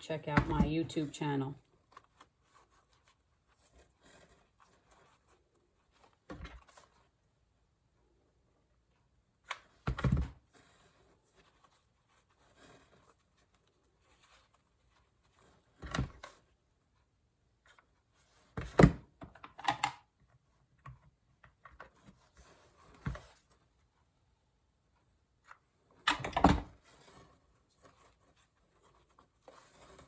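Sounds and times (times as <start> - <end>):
handling knocks and rustles: 0.1 - 7.2, 20.7 - 24.0.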